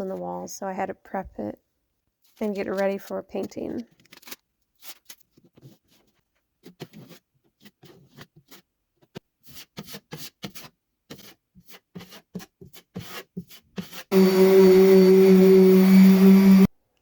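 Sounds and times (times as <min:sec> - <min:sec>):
hand tool scraping a wall: 0:05.4 - 0:16.6
loud steady hum: 0:14.1 - 0:16.7.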